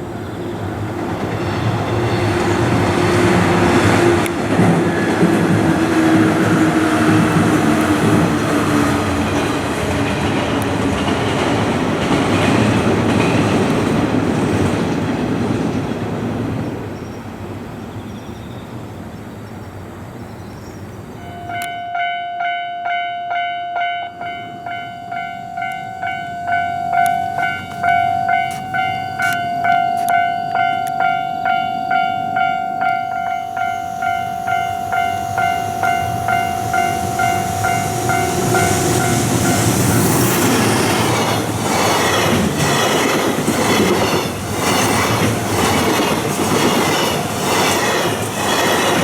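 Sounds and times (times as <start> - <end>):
train rumbling past: 0.0 - 49.0
level-crossing warning bell: 21.2 - 48.2.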